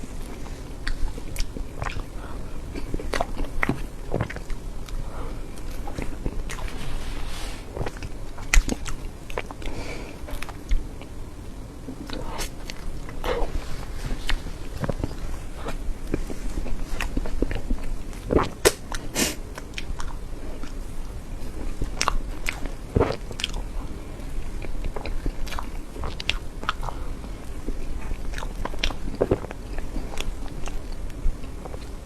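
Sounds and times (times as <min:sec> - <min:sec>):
person chewing cake: 0:00.0 - 0:32.0
mouth clicks and smacks: 0:00.4 - 0:05.0, 0:07.8 - 0:09.7.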